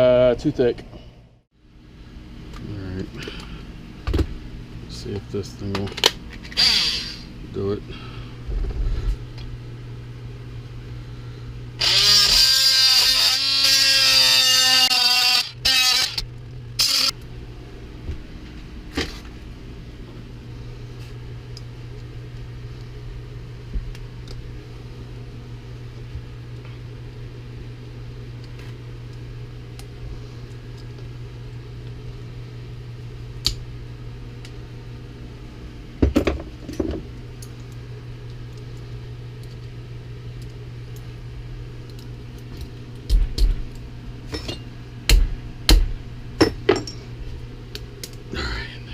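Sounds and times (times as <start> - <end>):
steady low hum: 0.0 - 48.9
power tool running: 6.5 - 7.3, 11.8 - 17.2.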